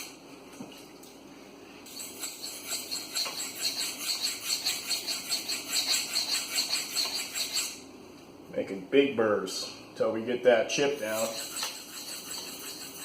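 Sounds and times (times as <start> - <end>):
knife scraping on sharpening stone: 1.9 - 7.8, 11.0 - 13.0.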